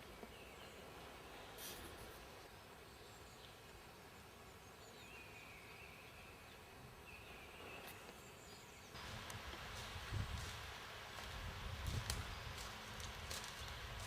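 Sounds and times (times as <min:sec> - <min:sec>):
hiss: 0:01.5 - 0:02.1.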